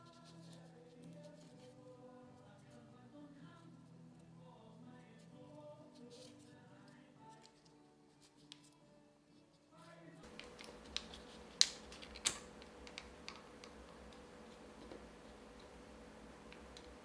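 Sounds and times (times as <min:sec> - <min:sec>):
steady low hiss: 0:09.2 - 0:17.0
hands handling small objects: 0:10.2 - 0:17.0.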